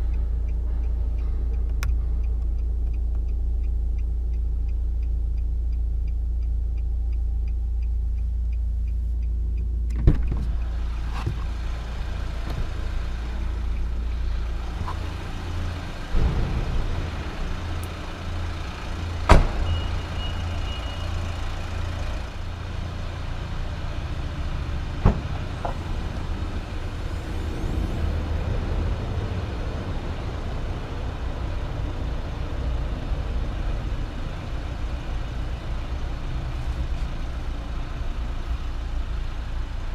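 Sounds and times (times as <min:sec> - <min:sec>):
sharp clicks and knocks: 0:07.8 - 0:19.8
diesel engine idling: 0:10.5 - 0:39.9.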